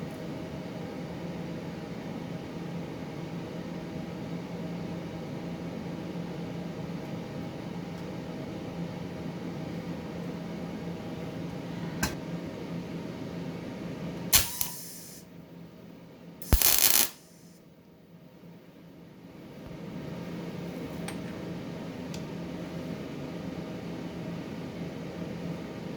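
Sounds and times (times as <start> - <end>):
electrical hum of a welder: 14.2 - 15.4, 16.4 - 17.6
hissing burst: 14.4 - 15.2, 16.4 - 17.5
sharp click: 14.4 - 15.2, 16.4 - 17.5.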